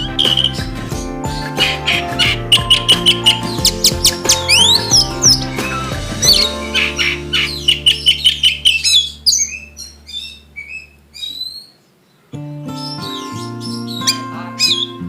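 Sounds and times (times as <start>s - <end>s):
bird chirps and whistles: 0.0s - 0.6s, 1.6s - 11.8s
guitar background music: 0.0s - 10.6s, 12.3s - 15.0s.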